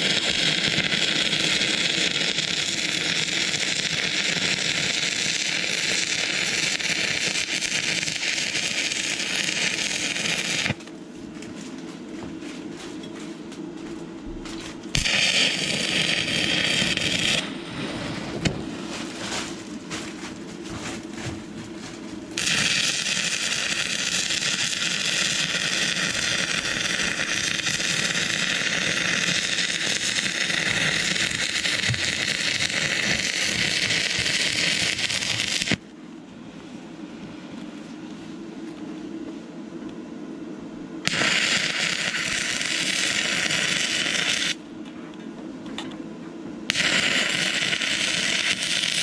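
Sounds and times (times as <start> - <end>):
welding arc crackling hiss: 0.0 - 11.6, 14.3 - 35.9, 41.0 - 44.7, 46.7 - 49.0
steady low hum: 0.0 - 49.0.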